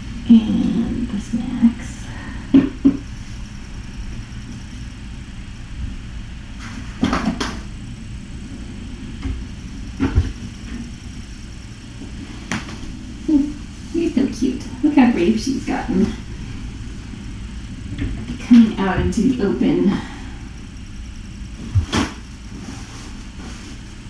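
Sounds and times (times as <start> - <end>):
steady low hum: 0.0 - 24.0
objects knocking and clattering: 7.0 - 7.6.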